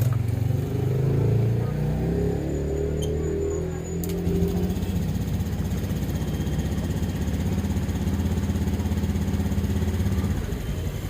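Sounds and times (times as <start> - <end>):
scooter engine idling: 3.0 - 11.0.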